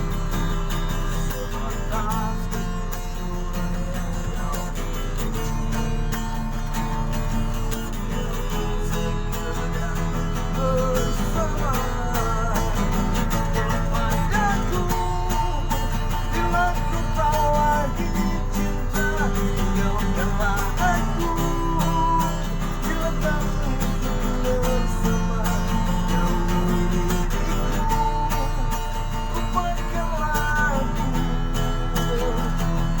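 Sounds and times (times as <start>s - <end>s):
acoustic guitar: 0.0s - 33.0s
low electrical hum: 0.0s - 33.0s
person singing: 8.2s - 33.0s.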